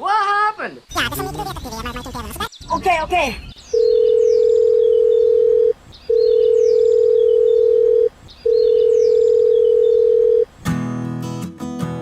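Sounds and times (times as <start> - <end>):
strummed acoustic guitar music: 10.6 - 12.0.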